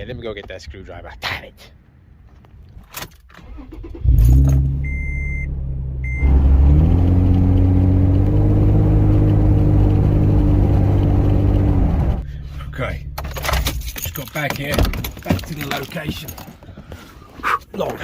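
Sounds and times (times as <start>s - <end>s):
car engine starting and running: 3.0s - 16.2s.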